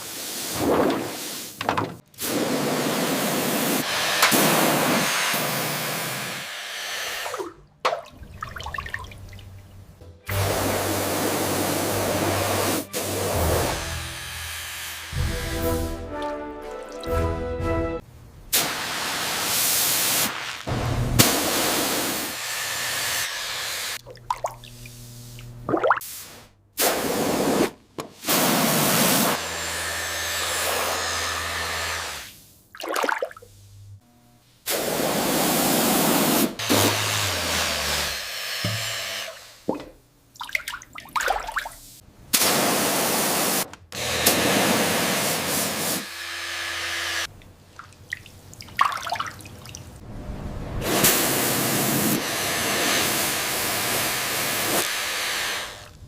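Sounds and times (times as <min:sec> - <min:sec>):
hissing spray bursts: 0:02.2 - 0:07.5, 0:10.3 - 0:16.1, 0:18.5 - 0:24.0, 0:26.0 - 0:29.4, 0:34.7 - 0:37.6, 0:41.8 - 0:46.2, 0:50.8 - 0:55.9.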